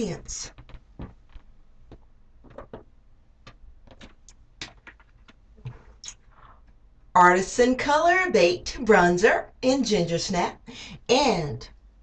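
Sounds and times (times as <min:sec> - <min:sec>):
faint clicks and taps: 0:00.5 - 0:06.8.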